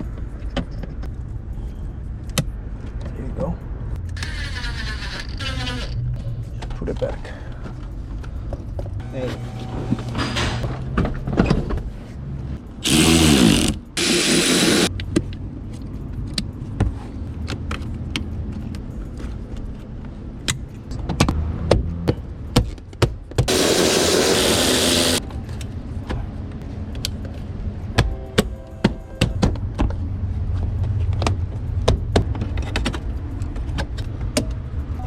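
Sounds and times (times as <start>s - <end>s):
power tool whirring: 12.8s - 14.9s, 23.5s - 25.2s.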